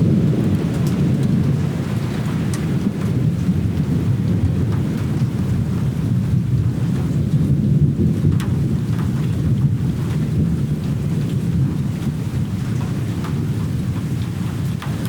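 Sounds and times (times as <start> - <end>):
deep continuous rumble: 0.0 - 15.0
sharp raindrop ticks: 0.0 - 15.0
steady rain falling: 0.0 - 15.0.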